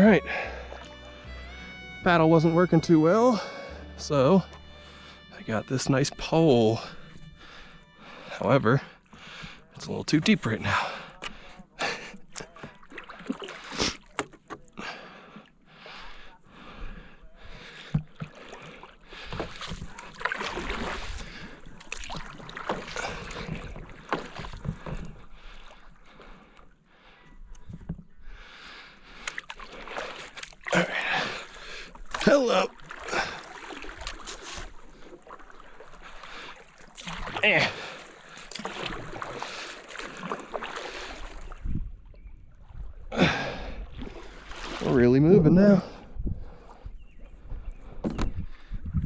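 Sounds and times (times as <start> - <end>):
paddle splashing in water: 0.0 - 28.3, 29.0 - 45.2
paddle knocking against boat: 17.8 - 18.4, 21.8 - 25.1
wind on microphone: 41.3 - 43.1, 46.0 - 49.0.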